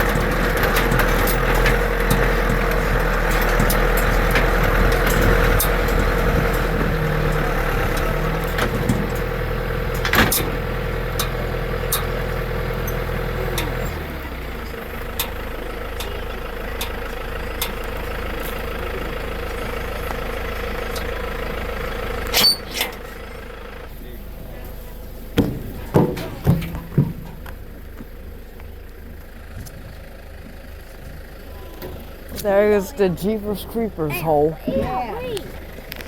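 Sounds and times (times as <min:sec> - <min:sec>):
knocks and rattles: 0:00.0 - 0:09.4, 0:25.4 - 0:27.6
tractor engine running: 0:00.0 - 0:36.0.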